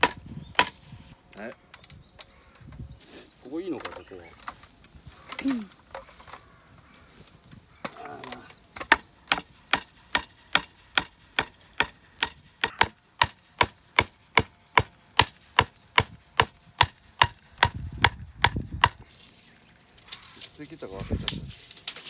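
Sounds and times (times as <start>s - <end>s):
stake hammered into ground: 0.0s - 0.8s, 8.8s - 19.1s.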